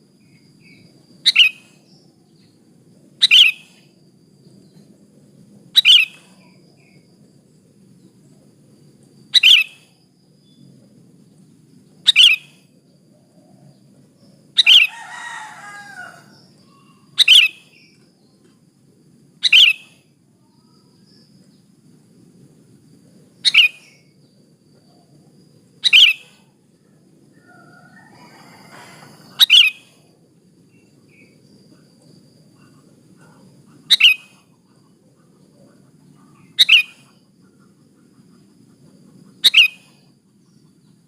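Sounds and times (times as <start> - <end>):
soft bird warbling: 27.4 - 29.9, 32.6 - 34.5.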